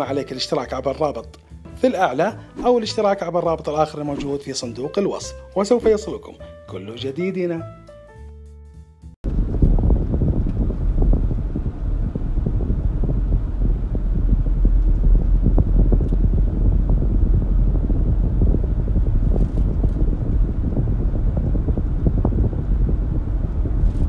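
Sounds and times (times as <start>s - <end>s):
wind buffeting microphone: 9.2s - 24.0s.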